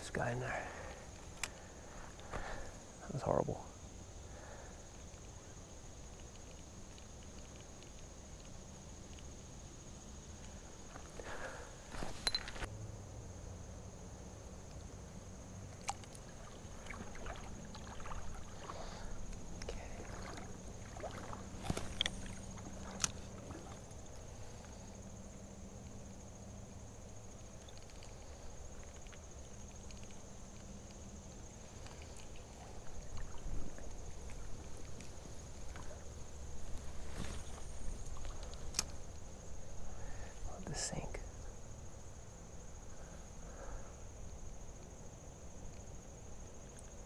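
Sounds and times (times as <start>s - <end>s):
rustling: 10.8s - 12.7s, 20.4s - 24.5s, 31.7s - 39.2s
water sloshing from wading: 15.5s - 40.5s.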